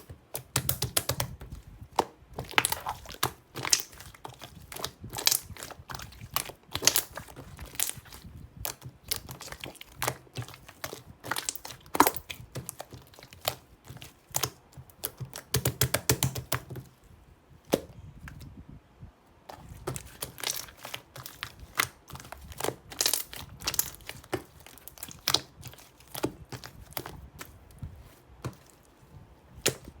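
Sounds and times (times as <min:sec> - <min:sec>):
small objects crinkling and clicking: 0:19.5 - 0:27.5.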